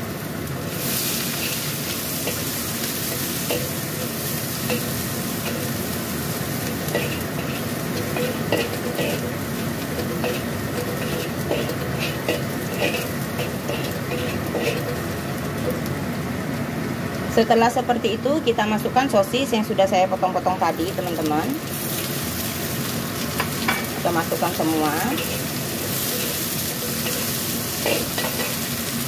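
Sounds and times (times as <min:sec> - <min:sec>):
shallots and garlic sizzling in oil: 0:00.0 - 0:29.0
metal spatula scraping a wok: 0:00.7 - 0:05.9, 0:06.6 - 0:15.1, 0:23.8 - 0:28.8.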